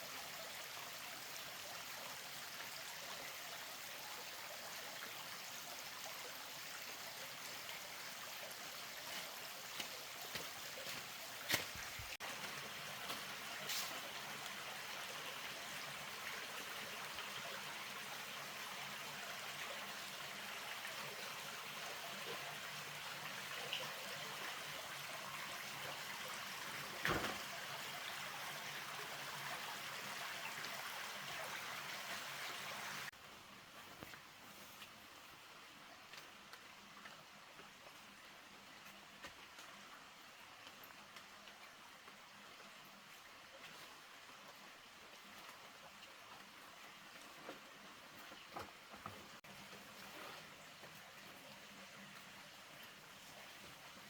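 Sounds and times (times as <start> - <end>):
water rushing: 4.6 - 33.1.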